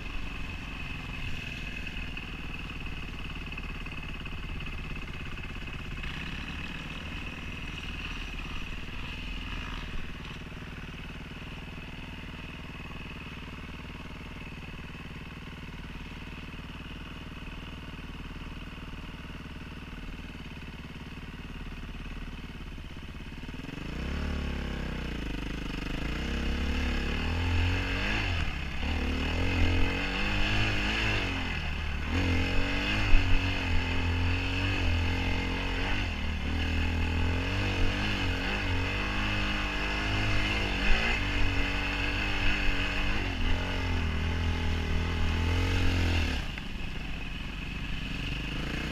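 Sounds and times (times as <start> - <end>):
dirt bike engine revving: 0.0 - 13.5, 23.5 - 46.6, 47.9 - 48.9.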